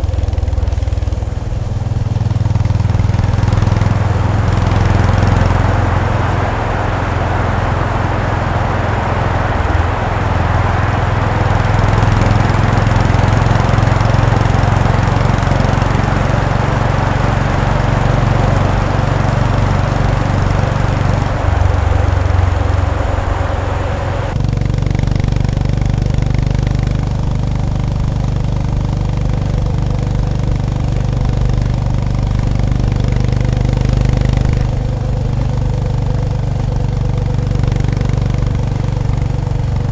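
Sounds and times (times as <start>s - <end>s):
motorcycle engine running: 0.0s - 39.9s
road noise: 0.0s - 39.9s
wind noise: 1.6s - 24.4s.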